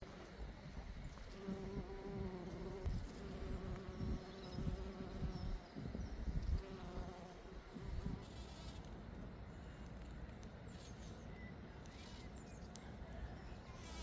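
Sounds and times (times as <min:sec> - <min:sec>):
bee buzzing: 0:01.2 - 0:08.9.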